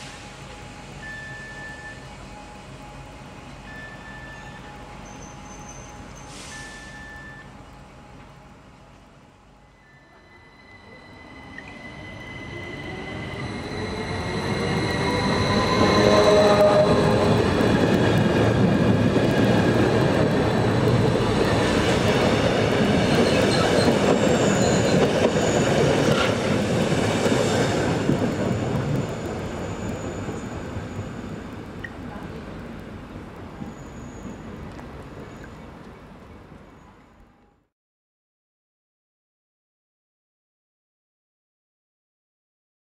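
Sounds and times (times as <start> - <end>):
wheels squealing on rails: 3.7 - 7.4, 9.8 - 19.6, 20.4 - 31.4, 33.6 - 35.6
train wheels rumbling: 11.0 - 35.2.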